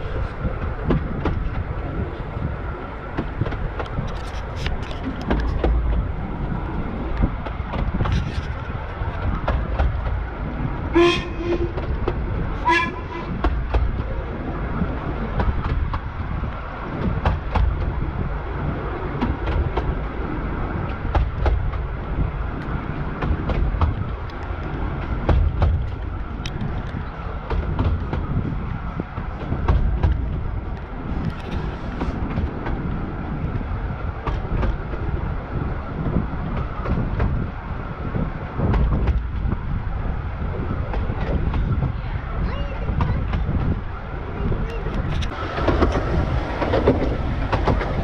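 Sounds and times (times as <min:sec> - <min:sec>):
train wheels rumbling on rails: 0:00.0 - 0:48.0
clicks over rail joints: 0:00.2 - 0:48.0
locomotive toot: 0:10.9 - 0:12.0, 0:12.6 - 0:13.5.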